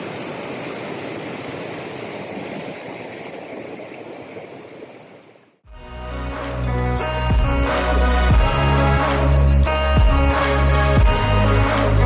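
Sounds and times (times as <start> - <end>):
stream water rushing: 0.0 - 5.5.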